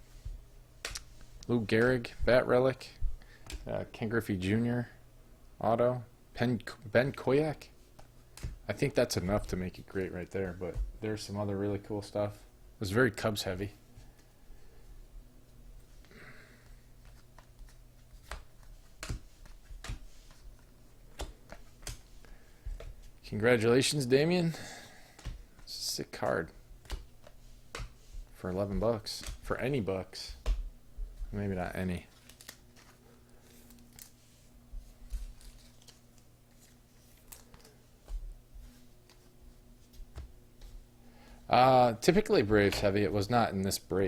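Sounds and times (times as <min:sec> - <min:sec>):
low steady hum: 0:00.0 - 0:44.0
cards rustling: 0:31.8 - 0:34.4, 0:35.0 - 0:40.0.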